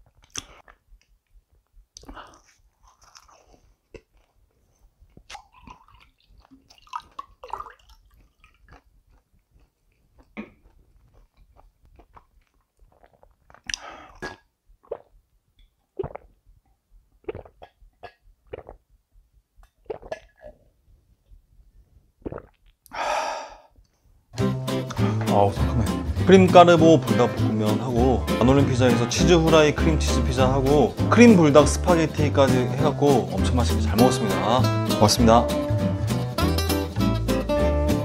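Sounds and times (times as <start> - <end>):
sipping and swallowing juice: 0.0 - 1.1, 2.0 - 19.0, 19.6 - 20.7, 22.2 - 23.8
wet mouth sounds: 0.0 - 21.4, 22.2 - 26.3
chewing and crunching: 2.0 - 14.4.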